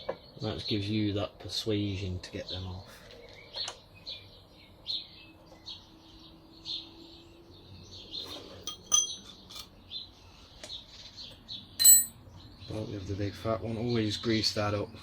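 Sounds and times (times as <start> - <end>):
bird chirping: 2.3 - 13.9
metallic clinks of tools: 8.7 - 9.7, 11.8 - 12.2.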